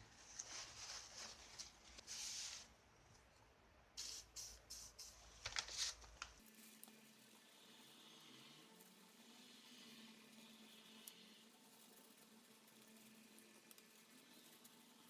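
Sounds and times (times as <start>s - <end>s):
faint scratching strokes: 0.1s - 2.8s, 4.0s - 15.0s.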